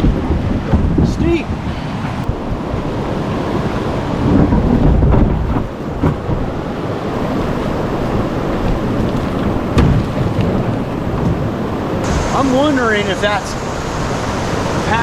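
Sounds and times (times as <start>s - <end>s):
river water rushing over rocks: 5.7s - 15.0s.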